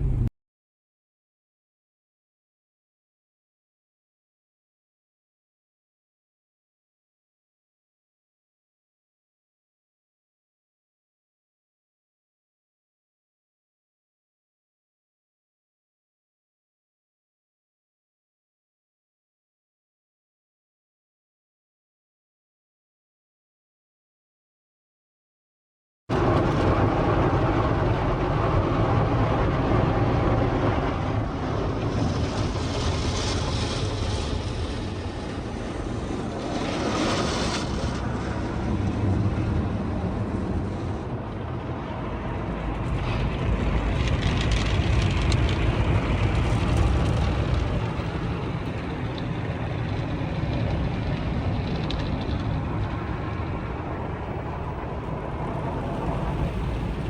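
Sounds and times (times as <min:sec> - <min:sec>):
car rumble with hiss: 0:00.0 - 0:00.3.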